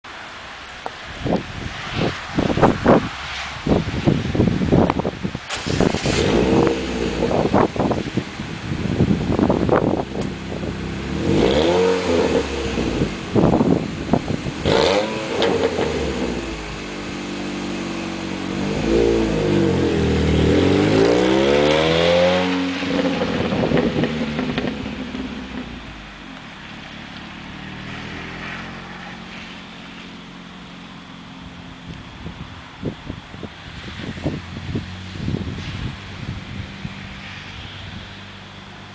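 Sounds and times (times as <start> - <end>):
car engine revving and idling: 5.5 - 32.9.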